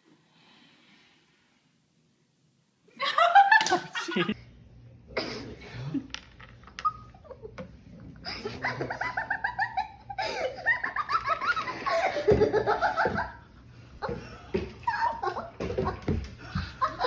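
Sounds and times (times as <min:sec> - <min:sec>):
people laughing: 0:03.0 - 0:04.4, 0:08.2 - 0:17.0.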